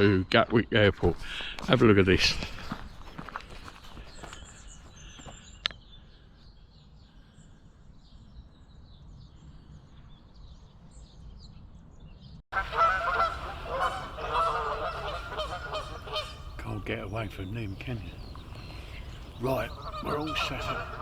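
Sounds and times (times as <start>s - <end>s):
small birds chirping: 2.4s - 21.0s
geese honking: 12.6s - 21.0s.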